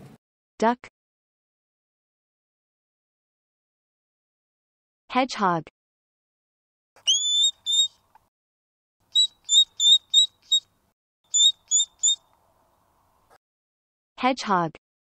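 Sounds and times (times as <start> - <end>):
hedgehog squeaking: 7.0 - 8.0, 9.1 - 10.6, 11.3 - 12.3.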